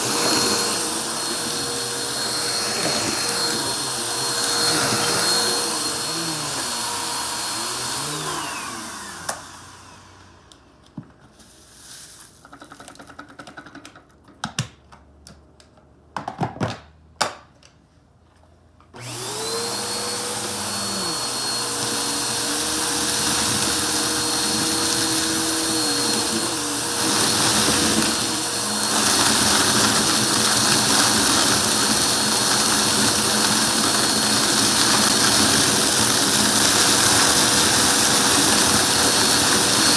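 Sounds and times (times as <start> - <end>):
vacuum cleaner motor whine: 0.0 - 11.0, 19.0 - 39.9.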